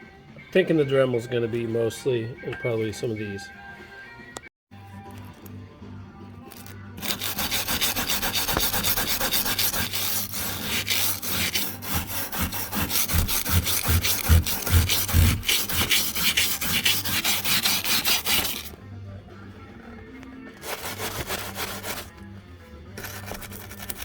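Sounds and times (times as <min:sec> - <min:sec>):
scrubbing metal frame by hand: 0:07.0 - 0:18.7, 0:20.6 - 0:22.1.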